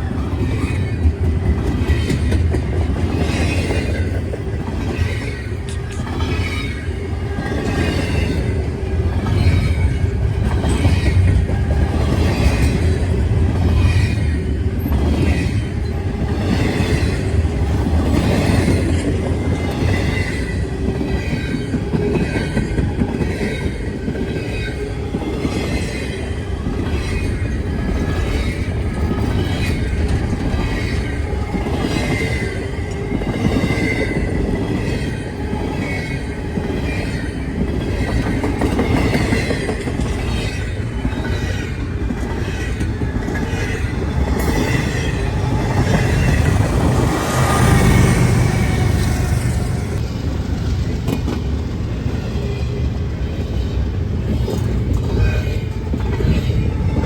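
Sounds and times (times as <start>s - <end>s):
train rumble: 0.0s - 57.0s.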